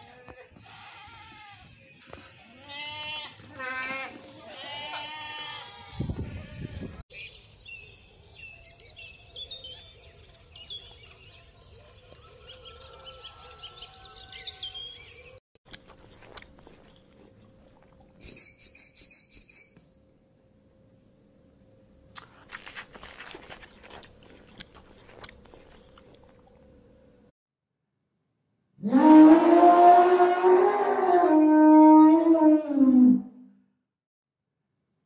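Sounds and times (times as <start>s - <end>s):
goat bleating: 2.6s - 6.9s.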